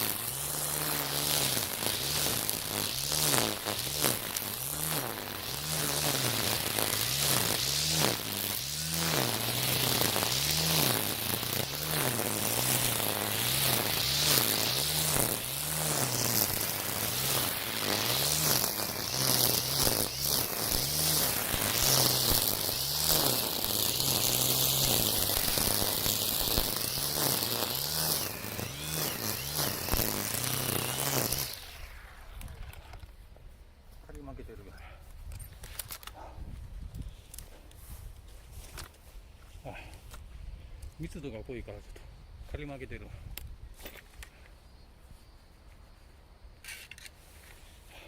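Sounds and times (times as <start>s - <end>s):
trimmer line thrashing weeds: 0.0s - 33.1s
string trimmer running: 0.0s - 33.2s.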